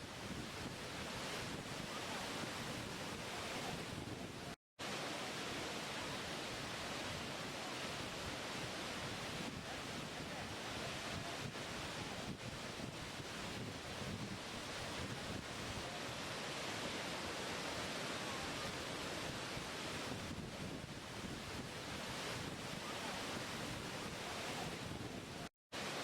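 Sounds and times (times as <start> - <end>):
waterfall roaring: 1.0 - 26.0.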